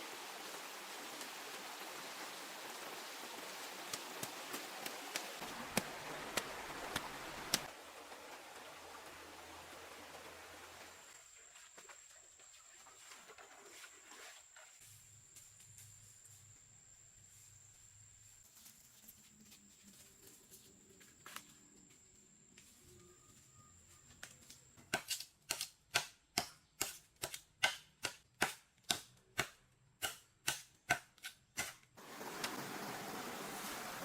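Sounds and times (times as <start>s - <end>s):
faint high-pitched tone: 22.7s - 24.3s.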